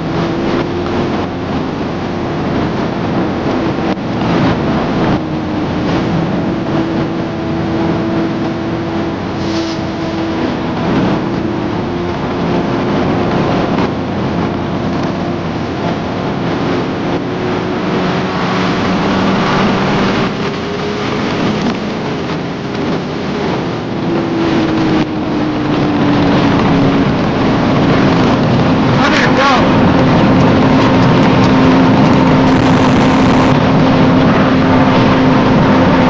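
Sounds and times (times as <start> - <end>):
wind rushing over microphone: 0.0 - 36.0
motorcycle engine running: 32.4 - 33.6.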